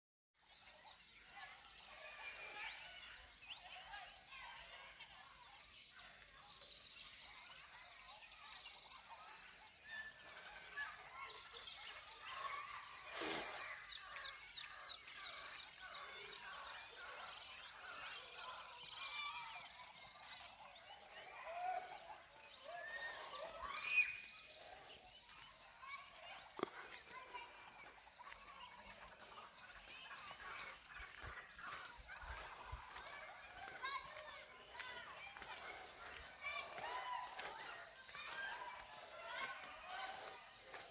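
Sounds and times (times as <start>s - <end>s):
chorus of birds calling: 0.4s - 40.9s.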